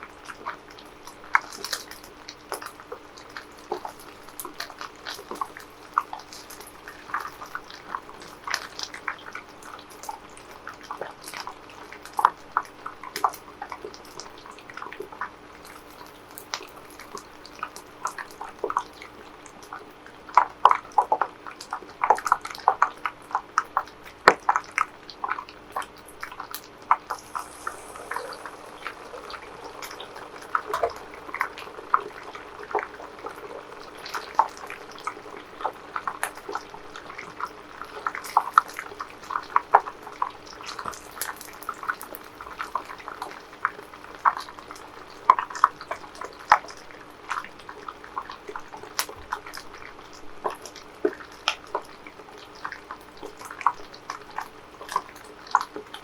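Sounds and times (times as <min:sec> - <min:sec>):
frying crackling and pops: 0:00.0 - 0:56.0
faint hum: 0:27.0 - 0:40.2.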